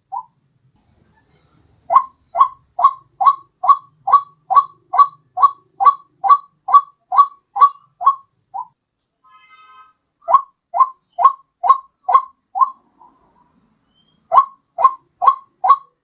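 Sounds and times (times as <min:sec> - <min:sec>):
waterhen calling: 0:01.9 - 0:08.8, 0:10.2 - 0:13.3, 0:13.9 - 0:16.0.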